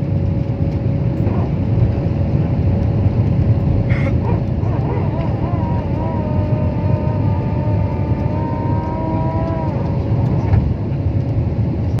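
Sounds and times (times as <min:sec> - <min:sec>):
jet engines at takeoff power: 0:00.0 - 0:12.0.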